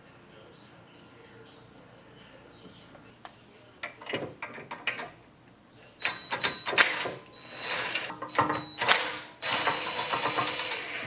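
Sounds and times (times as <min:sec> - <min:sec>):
metal clicks and rattles: 0:03.8 - 0:05.2.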